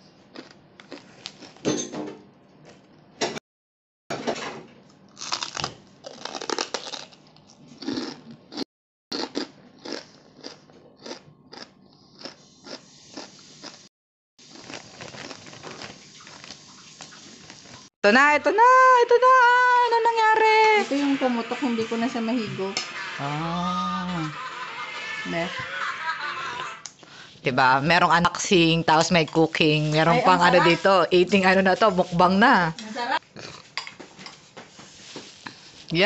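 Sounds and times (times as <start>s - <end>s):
crunching pork rind: 0.3s - 1.6s, 4.9s - 13.8s, 14.4s - 17.8s.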